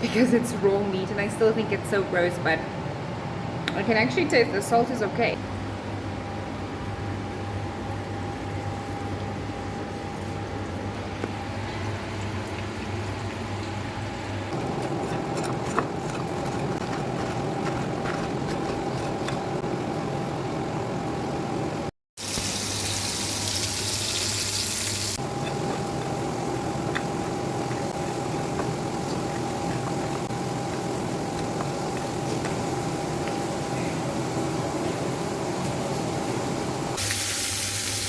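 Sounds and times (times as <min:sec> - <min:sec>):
kitchen hum: 0:00.0 - 0:38.0
meat sizzling in a frying pan: 0:22.2 - 0:25.2, 0:35.0 - 0:38.0.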